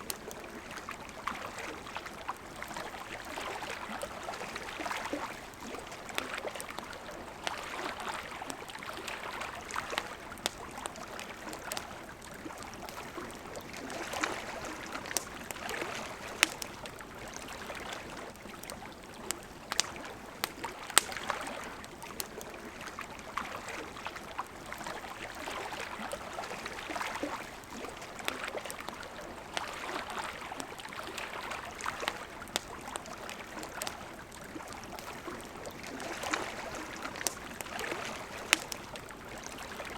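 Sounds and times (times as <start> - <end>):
campfire crackling and popping: 0.0 - 39.9
river water babbling: 0.0 - 39.9.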